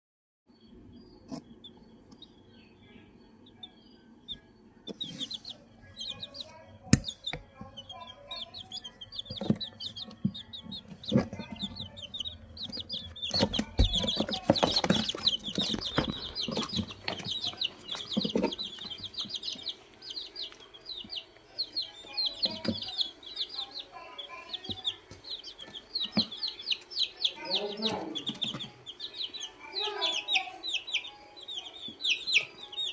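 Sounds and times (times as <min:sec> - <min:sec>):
chicks peeping: 0:00.5 - 0:32.9
chickens clucking: 0:04.8 - 0:32.9
knocks and bumps: 0:12.6 - 0:19.3.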